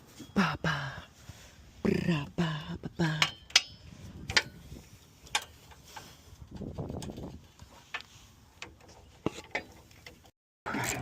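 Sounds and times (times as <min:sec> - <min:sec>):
hand tools tapping on metal: 0:02.5 - 0:10.3.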